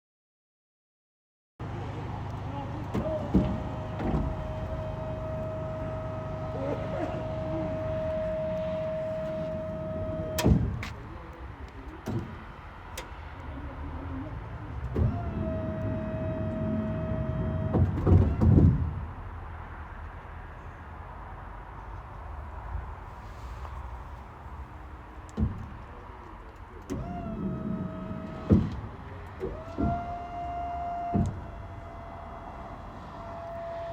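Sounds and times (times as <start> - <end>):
clunks: 1.6 - 13.7, 14.5 - 19.2, 23.1 - 33.9
electric motor whining: 2.5 - 10.8, 15.0 - 18.0, 26.9 - 33.9.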